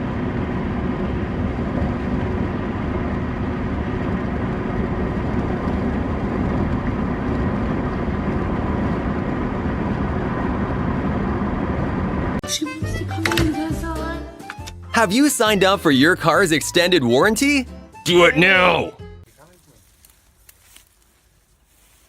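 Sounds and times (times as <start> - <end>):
steady mechanical running noise: 0.0 - 12.4.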